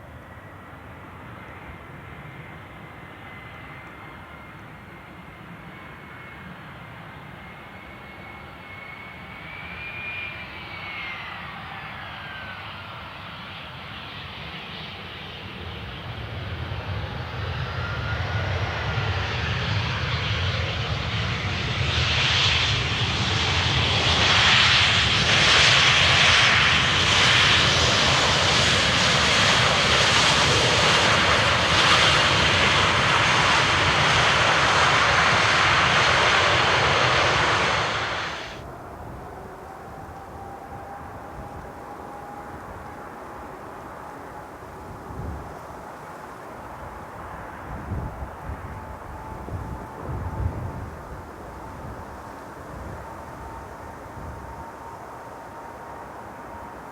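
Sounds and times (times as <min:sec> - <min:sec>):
jet airliner engines passing: 0:00.0 - 0:56.9
thin engine whine: 0:15.4 - 0:56.9.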